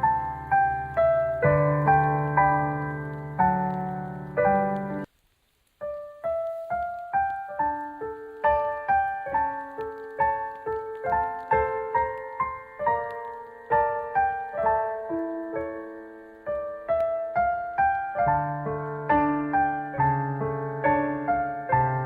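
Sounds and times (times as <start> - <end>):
soft piano music: 0.0 - 5.1, 5.7 - 22.0.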